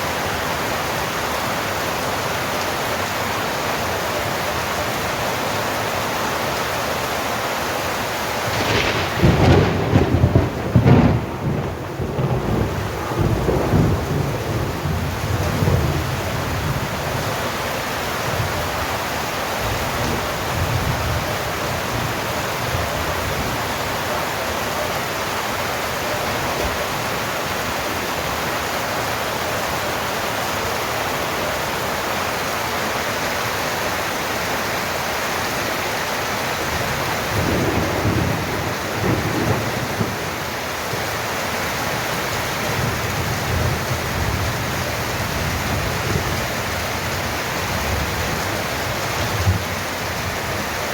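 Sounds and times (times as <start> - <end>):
heavy rain falling: 0.0 - 50.9
thunder rumbling: 8.4 - 17.6, 36.7 - 40.7, 42.6 - 50.9.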